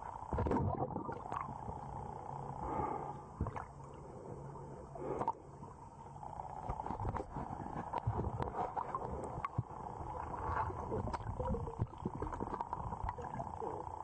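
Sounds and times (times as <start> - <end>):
steady dull hum: 0.0 - 14.0
underwater bubbles gurgling: 0.2 - 2.2, 6.4 - 14.0.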